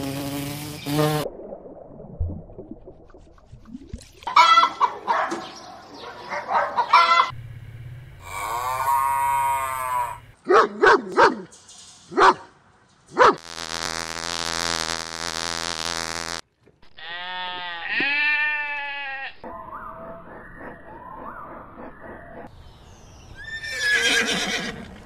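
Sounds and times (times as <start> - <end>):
farm animals bleating: 8.2 - 10.2, 16.8 - 19.5
long pitched animal call: 8.2 - 10.2.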